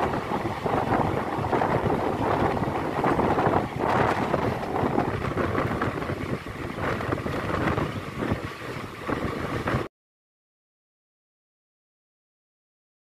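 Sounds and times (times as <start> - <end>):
train coach rumbling on track: 0.0 - 9.9
wind buffeting microphone: 0.0 - 9.9.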